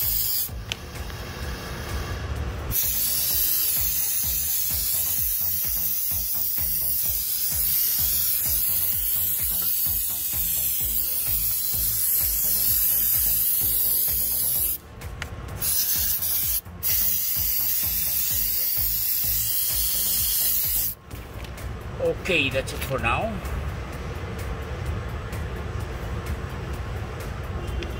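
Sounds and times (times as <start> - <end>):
aerosol can spraying hiss: 0.0 - 14.8, 15.6 - 21.0.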